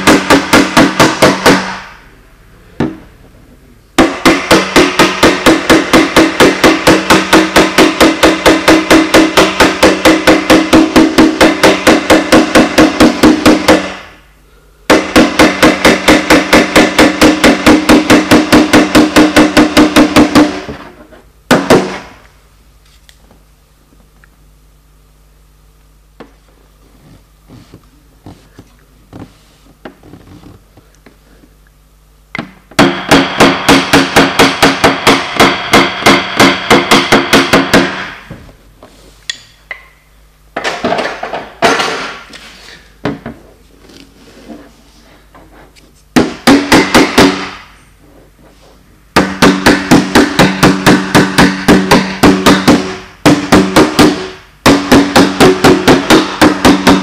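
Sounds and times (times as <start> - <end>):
small hammer tapping sheet metal: 4.0 - 14.1, 14.9 - 20.9, 49.2 - 57.0.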